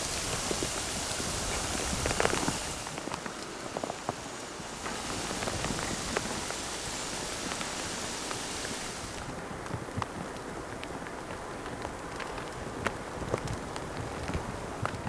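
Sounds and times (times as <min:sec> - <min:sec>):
wind-driven snow hissing: 0:00.0 - 0:09.5
ticks of frozen precipitation: 0:00.0 - 0:15.0.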